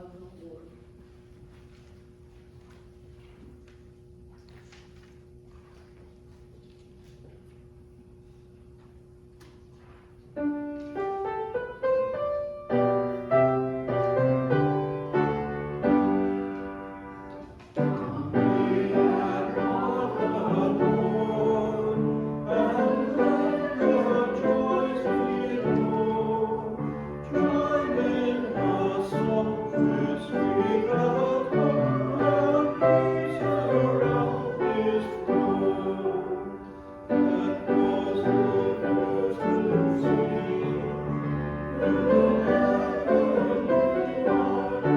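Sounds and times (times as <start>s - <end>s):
piano playing: 10.4s - 44.9s
voices singing a hymn: 12.7s - 44.9s.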